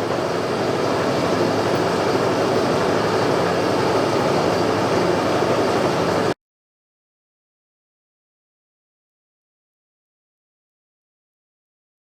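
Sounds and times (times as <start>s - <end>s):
boring bar machine whirring: 0.0s - 6.4s.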